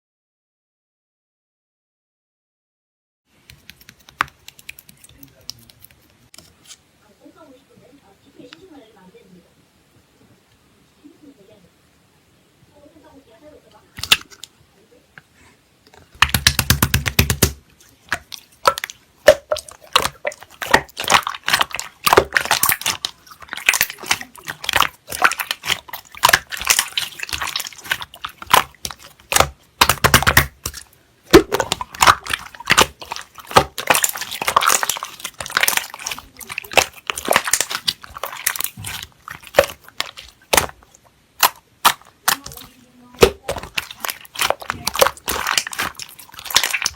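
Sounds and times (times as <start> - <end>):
slime squishing: 3.4 - 6.8, 14.0 - 14.5, 15.9 - 46.9.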